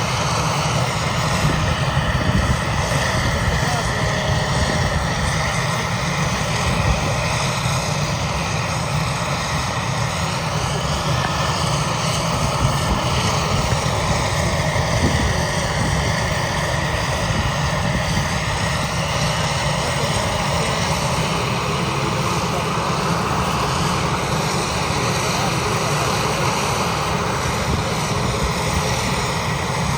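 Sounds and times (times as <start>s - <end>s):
helicopter rotor throb: 0.0s - 29.9s
turbine engines whining: 0.0s - 29.9s.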